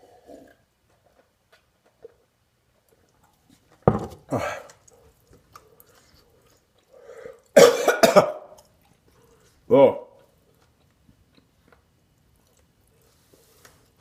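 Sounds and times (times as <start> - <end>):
man coughing hard: 7.6 - 8.5.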